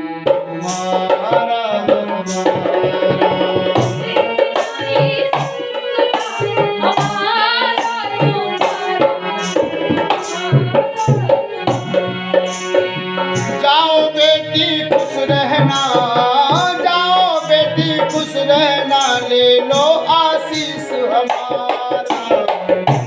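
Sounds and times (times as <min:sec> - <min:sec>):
tabla playing a steady rhythm: 0:00.0 - 0:23.0.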